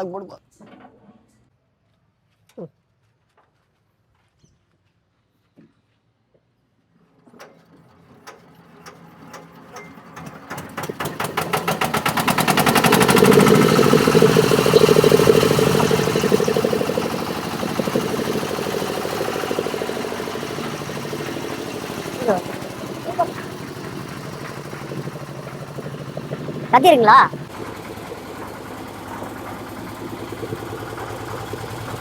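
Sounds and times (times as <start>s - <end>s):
diesel engine starting up: 7.0s - 32.0s.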